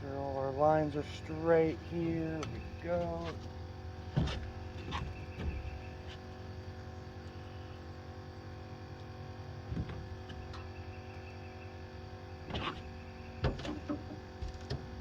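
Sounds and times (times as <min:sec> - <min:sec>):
boat motor idling: 0:00.0 - 0:15.0.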